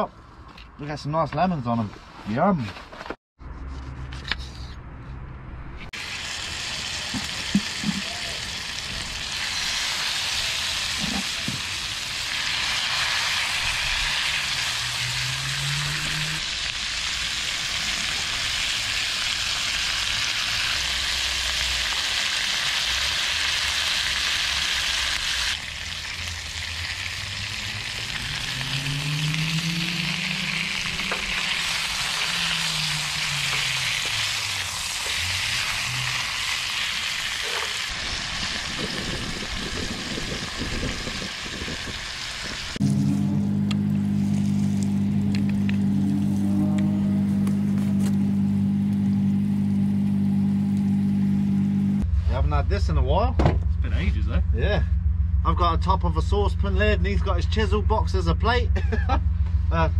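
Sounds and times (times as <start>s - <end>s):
fish sizzling in a frying pan: 6.0s - 15.3s, 15.9s - 28.7s, 29.7s - 42.8s.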